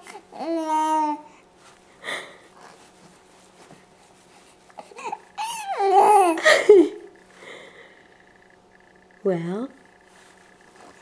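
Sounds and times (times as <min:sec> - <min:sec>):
baby babbling and squealing: 0:00.3 - 0:01.3, 0:04.8 - 0:06.4.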